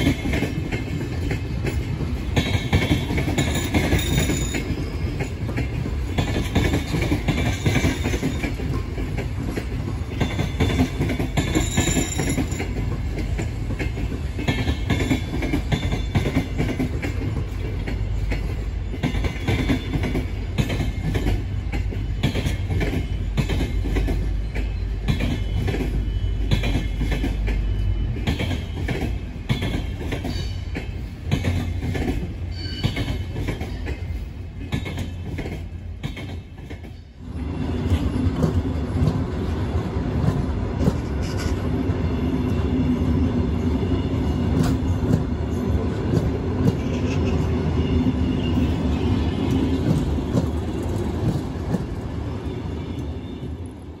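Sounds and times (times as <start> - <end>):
wheels clicking over rail joints: 0.0 - 37.0
passenger coaches rumbling: 0.0 - 54.0
train wheels squealing: 1.0 - 8.9, 10.1 - 13.4, 14.4 - 16.9, 22.0 - 31.8, 32.5 - 38.6, 46.8 - 50.7.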